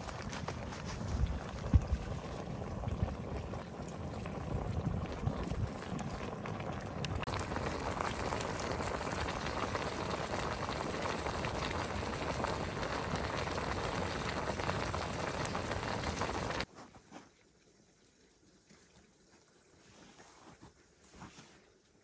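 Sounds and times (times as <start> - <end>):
food sizzling in hot oil: 1.4 - 16.7.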